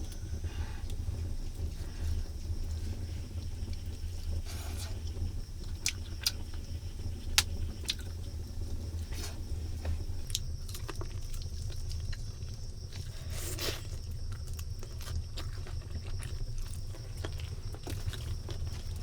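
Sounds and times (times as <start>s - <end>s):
low rumble: 0.0s - 10.8s.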